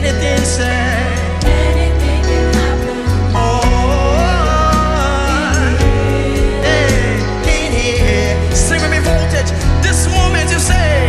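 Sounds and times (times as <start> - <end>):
gospel band playing: 0.0 - 11.0
person singing: 0.0 - 11.0.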